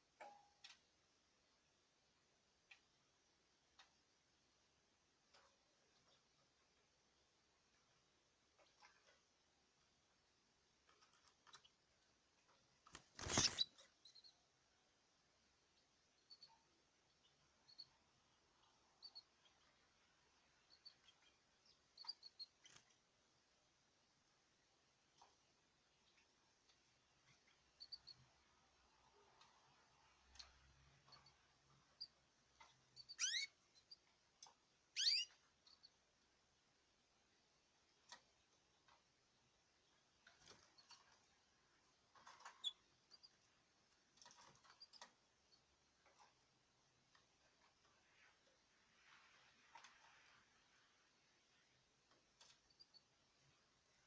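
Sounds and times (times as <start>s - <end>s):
small birds chirping: 10.7s - 23.4s, 25.1s - 36.4s, 37.2s - 54.0s.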